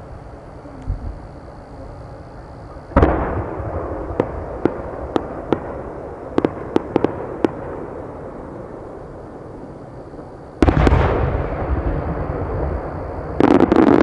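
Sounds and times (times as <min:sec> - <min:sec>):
firework shell booming: 0:03.0 - 0:08.1, 0:10.6 - 0:14.0
firework pops and cracks: 0:04.1 - 0:07.8, 0:10.6 - 0:11.4.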